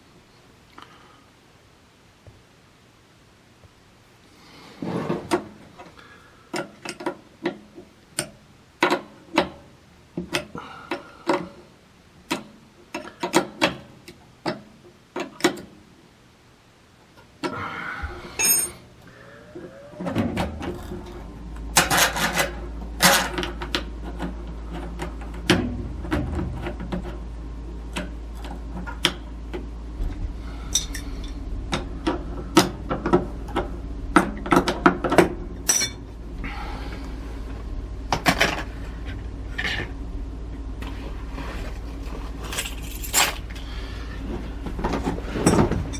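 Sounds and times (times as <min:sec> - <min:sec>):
steady low hum: 0:15.8 - 0:45.9
metal tools clinking: 0:18.4 - 0:18.8, 0:30.7 - 0:31.4, 0:35.7 - 0:36.0, 0:42.4 - 0:43.4.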